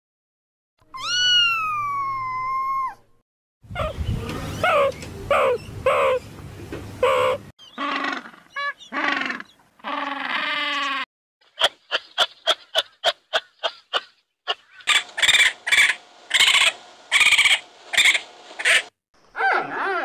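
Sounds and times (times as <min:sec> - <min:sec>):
raccoon raspy cries: 0:04.6 - 0:06.2, 0:07.0 - 0:11.0, 0:14.9 - 0:20.0.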